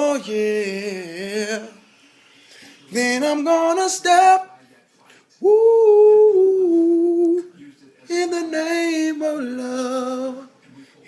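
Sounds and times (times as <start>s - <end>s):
man singing long wordless notes: 0.0s - 1.8s, 2.9s - 4.6s, 5.4s - 7.5s, 8.1s - 10.5s.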